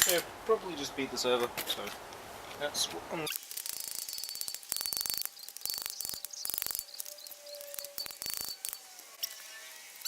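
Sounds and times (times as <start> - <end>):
insects chirping: 3.4 - 10.0.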